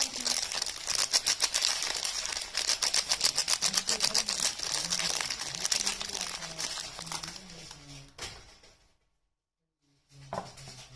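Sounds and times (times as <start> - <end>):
wrapping crackling being unwrapped: 0.0 - 8.2.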